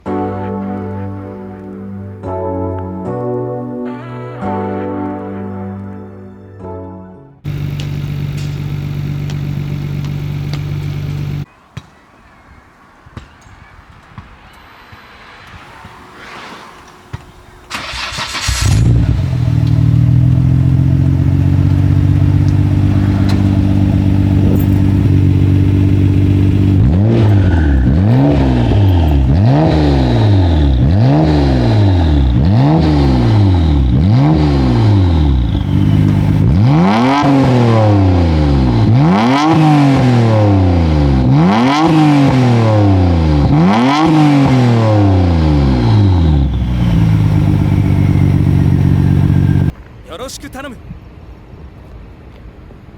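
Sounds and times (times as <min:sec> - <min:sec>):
car engine idling: 0:07.5 - 0:11.5, 0:16.9 - 0:37.2, 0:45.2 - 0:49.8
engine revving: 0:07.5 - 0:11.5, 0:15.4 - 0:49.8.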